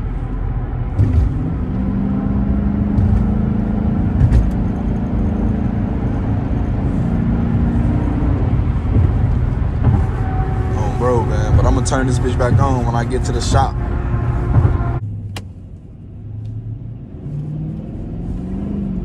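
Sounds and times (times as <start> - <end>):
car engine accelerating hard: 0.0 - 19.0
thump: 4.1 - 4.7, 14.4 - 15.5.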